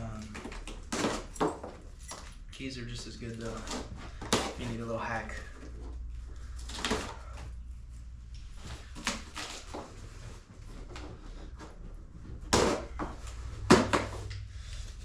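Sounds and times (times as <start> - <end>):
packaging scraping and rustling: 8.5 - 11.8.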